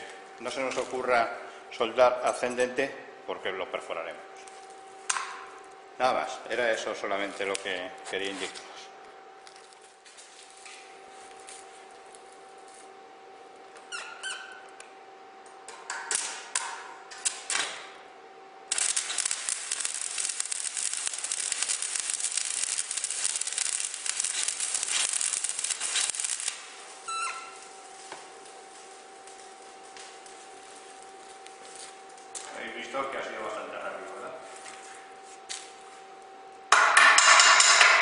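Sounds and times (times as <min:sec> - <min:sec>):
faint steady hum: 0:00.0 - 0:38.0
welding arc sputtering: 0:18.7 - 0:32.4
welding arc crackling: 0:18.7 - 0:32.5.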